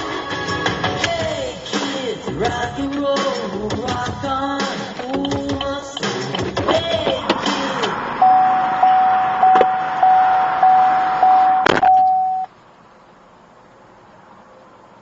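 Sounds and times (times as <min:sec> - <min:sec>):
electronic beeps: 0:08.2 - 0:12.5.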